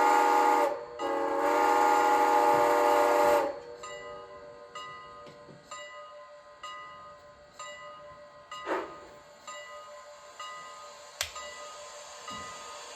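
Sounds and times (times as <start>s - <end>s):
model train whistle: 0.0s - 3.7s.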